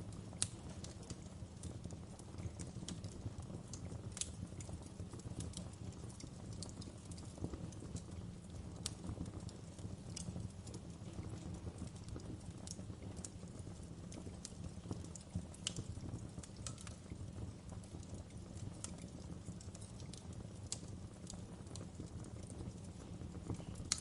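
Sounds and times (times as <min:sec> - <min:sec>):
low rumble of flames: 0:00.0 - 0:24.0
wood fire crackling and popping: 0:00.0 - 0:24.0.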